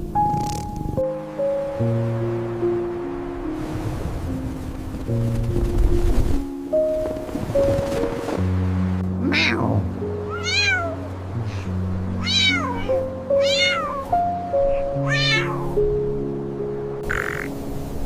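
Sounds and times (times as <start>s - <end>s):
background music: 0.0s - 18.0s
cat meowing: 9.2s - 15.8s.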